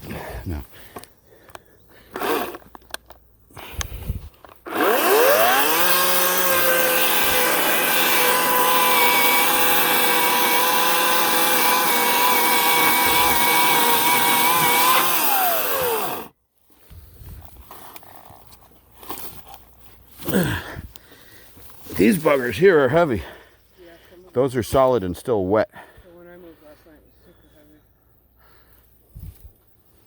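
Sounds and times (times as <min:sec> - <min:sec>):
electric chainsaw motor whine: 0:02.1 - 0:02.6, 0:04.6 - 0:16.3.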